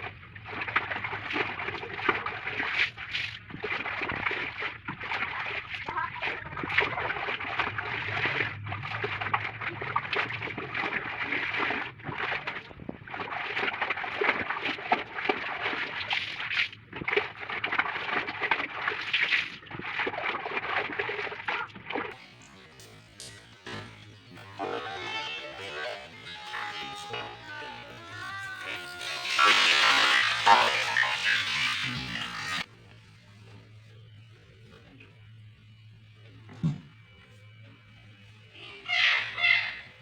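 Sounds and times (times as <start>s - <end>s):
clothes sloshing in water: 0.0s - 22.3s.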